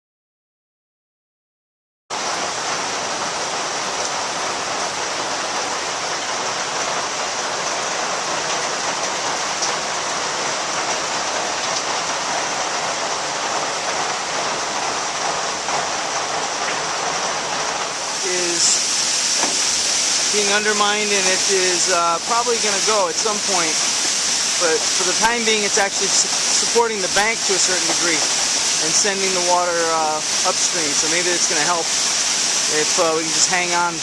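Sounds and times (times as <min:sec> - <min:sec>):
rain falling: 0:02.1 - 0:34.0
swollen river rushing: 0:02.2 - 0:34.0.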